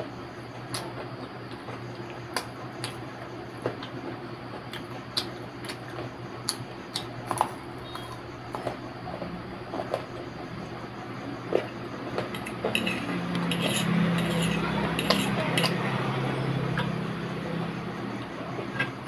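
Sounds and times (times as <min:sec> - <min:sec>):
low background hum: 0:00.0 - 0:19.0
crunchy chewing: 0:04.6 - 0:19.0.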